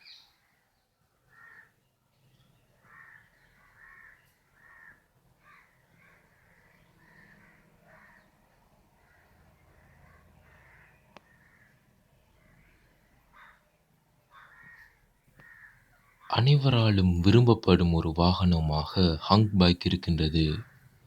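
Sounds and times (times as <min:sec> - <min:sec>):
crows cawing: 0:01.3 - 0:01.7, 0:02.9 - 0:06.2, 0:13.4 - 0:13.6, 0:14.3 - 0:15.8
low background hum: 0:16.3 - 0:20.6.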